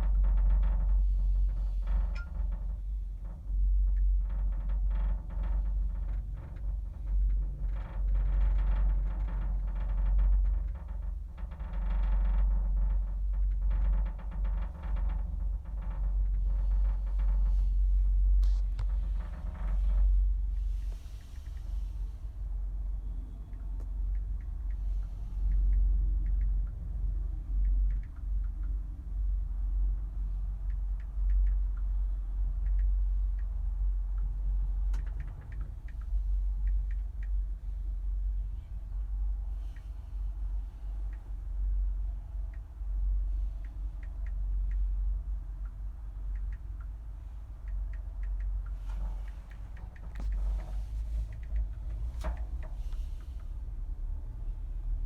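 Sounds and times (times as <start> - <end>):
wind rumble on microphone: 0.0 - 55.0
faint high ticks: 1.9 - 16.0, 23.4 - 29.1, 29.9 - 37.7, 42.4 - 53.6.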